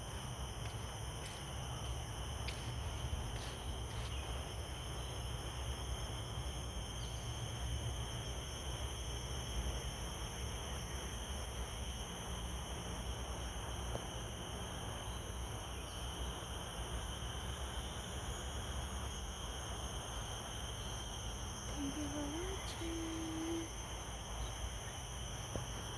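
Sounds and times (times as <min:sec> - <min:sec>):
crickets trilling: 0:00.0 - 0:25.9.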